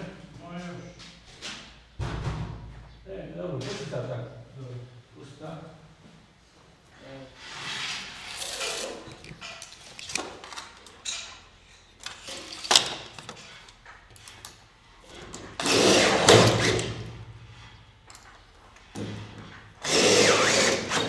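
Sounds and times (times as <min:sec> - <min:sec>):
scrapes and knocks of door parts: 0:15.0 - 0:17.1
power tool humming: 0:19.8 - 0:21.0.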